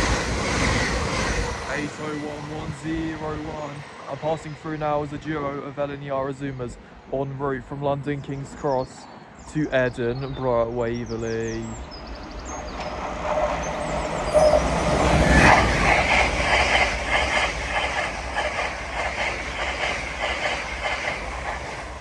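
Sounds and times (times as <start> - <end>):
wheels rushing on rail: 0.0 - 22.0
train wheels clattering: 12.3 - 22.0.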